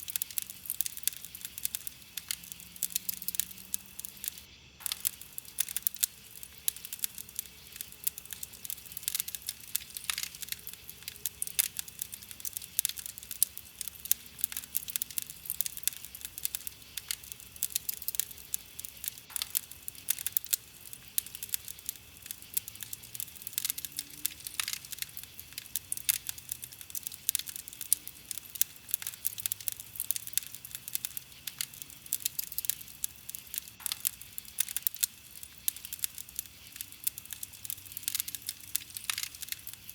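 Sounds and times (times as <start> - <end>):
campfire crackling and popping: 0.0 - 39.9
soft steady hiss: 0.0 - 39.9.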